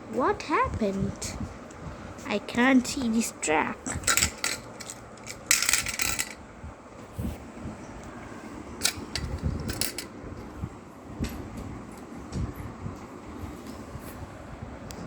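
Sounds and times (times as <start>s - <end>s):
plastic toy parts clicking: 4.0s - 6.4s, 8.8s - 10.1s.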